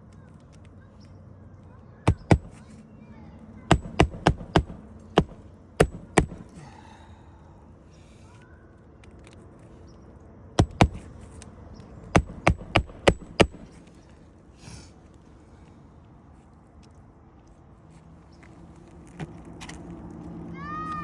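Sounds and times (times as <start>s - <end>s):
hammer strikes on shingle roof: 2.1s - 2.7s, 3.7s - 6.8s, 10.6s - 11.3s, 12.1s - 14.0s.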